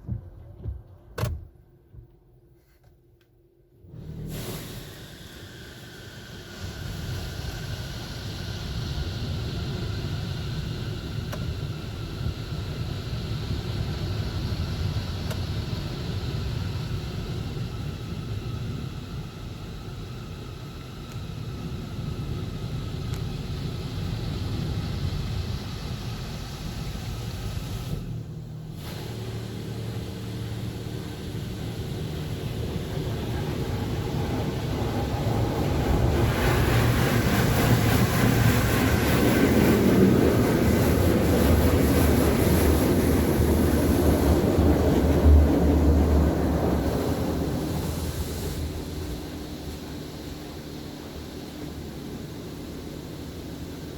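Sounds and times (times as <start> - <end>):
steady hum: 0.0 - 53.9
high-pressure water spray: 4.2 - 10.6, 24.1 - 45.2, 46.6 - 50.4
pump noise: 23.6 - 53.9.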